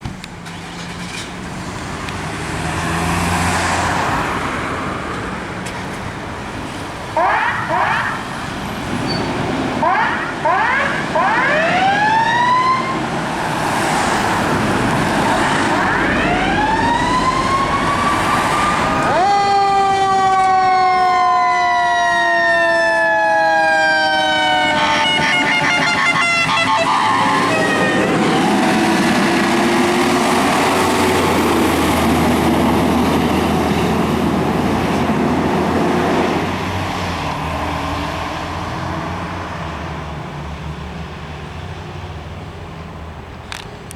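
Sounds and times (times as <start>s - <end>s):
truck engine rumbling: 0.0s - 43.9s
sirens wailing: 6.8s - 40.2s
fast yelping siren: 7.2s - 8.3s, 9.8s - 13.0s, 15.3s - 28.8s.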